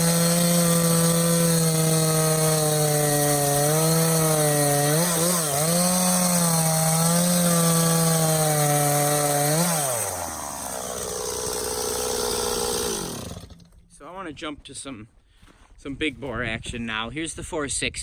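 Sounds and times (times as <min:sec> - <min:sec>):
chainsaw cutting log: 0:00.0 - 0:13.9.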